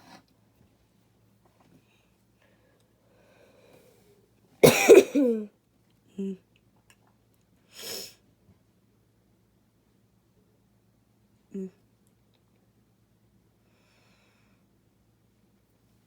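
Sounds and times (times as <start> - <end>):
person breathing: 2.4 - 4.2
person coughing: 4.6 - 5.5.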